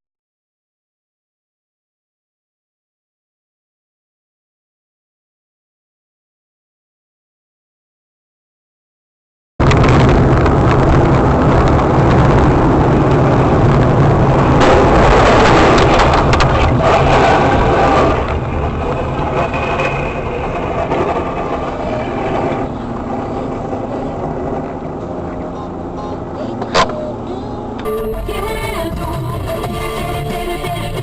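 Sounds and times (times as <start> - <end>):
car engine: 9.6 - 31.0
road noise: 9.6 - 31.0.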